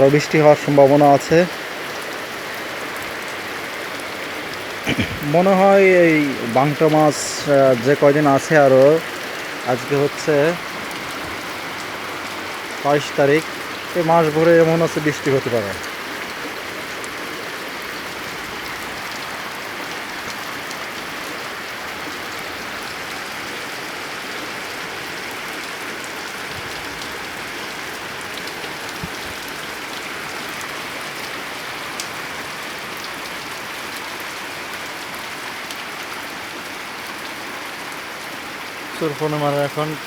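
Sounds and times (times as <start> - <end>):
heavy rain on a tin roof: 0.0 - 40.0.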